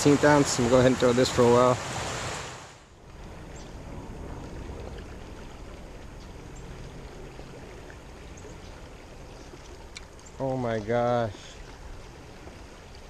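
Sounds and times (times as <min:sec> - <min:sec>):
fast-flowing creek: 0:00.0 - 0:13.0
faint high ticks: 0:09.6 - 0:10.8.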